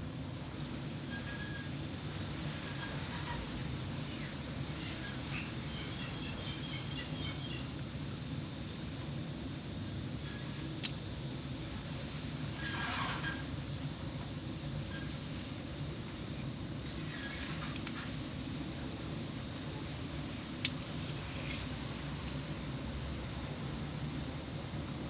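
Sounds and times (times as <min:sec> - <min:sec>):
sharp clicks: 0:10.8 - 0:11.1.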